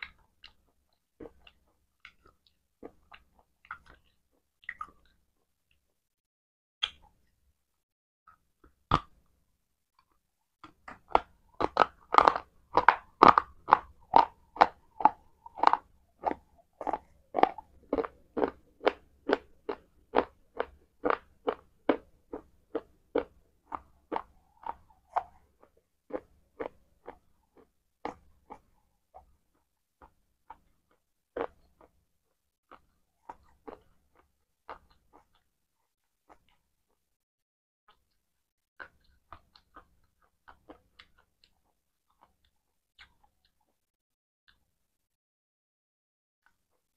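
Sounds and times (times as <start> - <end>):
crunchy chewing: 0.0 - 5.2, 10.9 - 32.0, 32.7 - 35.5, 38.8 - 43.8.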